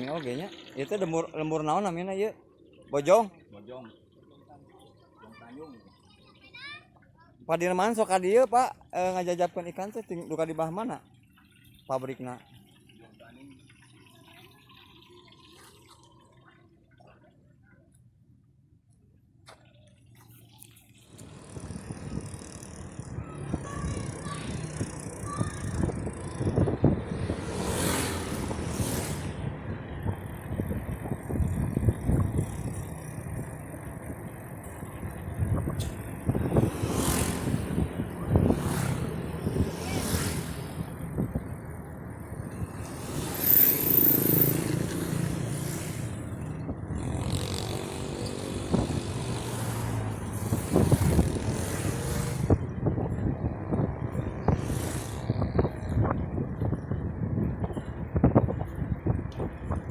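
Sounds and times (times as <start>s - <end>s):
tyres rumbling on road: 21.1s - 59.9s
wind buffeting microphone: 21.2s - 59.9s.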